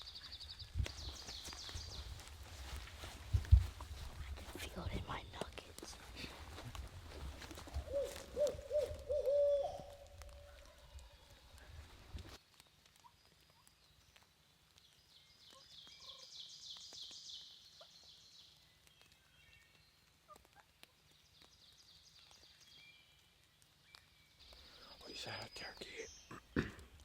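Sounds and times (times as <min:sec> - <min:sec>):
faint bird calls: 0:07.7 - 0:11.7.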